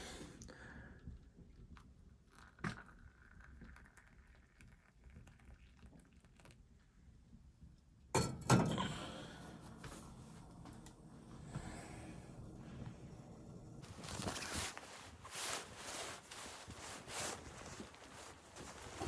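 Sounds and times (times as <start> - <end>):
objects knocking and clattering: 8.2 - 8.9.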